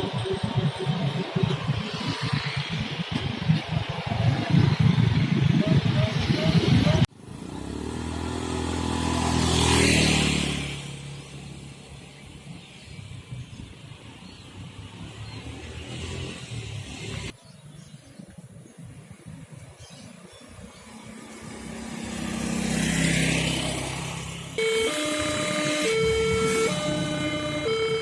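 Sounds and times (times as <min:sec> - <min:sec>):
background traffic noise: 0:00.0 - 0:28.0
vehicle engine passing: 0:07.2 - 0:11.8, 0:21.1 - 0:28.0.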